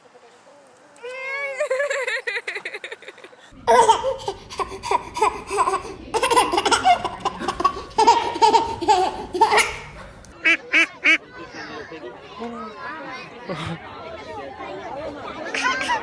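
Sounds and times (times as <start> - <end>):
baby laughing: 1.0 - 10.1.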